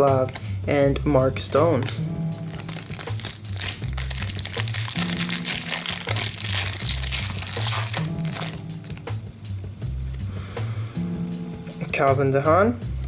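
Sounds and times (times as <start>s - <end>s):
background music with bass line: 0.0s - 13.0s
card pack wrapper crinkling: 1.8s - 9.0s.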